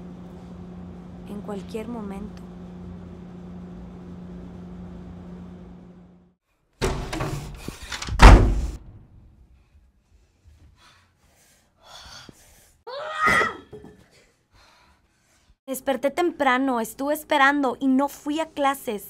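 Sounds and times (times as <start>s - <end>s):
low steady hum: 0.0s - 6.3s
heavy thump: 6.8s - 9.2s.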